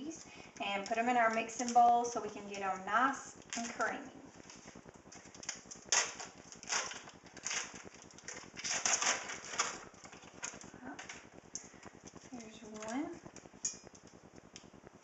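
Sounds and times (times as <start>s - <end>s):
wrappers crinkling and rustling: 0.0s - 14.5s.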